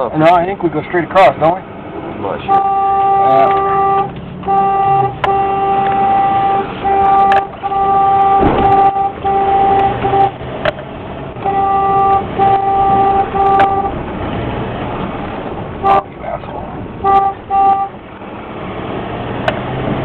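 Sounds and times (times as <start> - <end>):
low vehicle rumble: 0.0 - 20.0
vehicle horn blasts: 2.4 - 10.4, 11.4 - 14.0, 15.8 - 16.1, 17.0 - 18.0.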